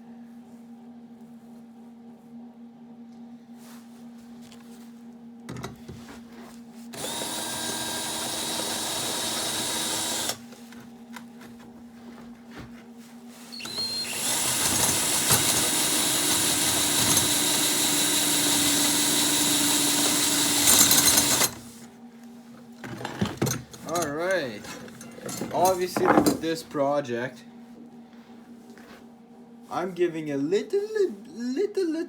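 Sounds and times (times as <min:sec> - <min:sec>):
power tool grinding metal: 0:07.0 - 0:10.4, 0:13.6 - 0:21.6.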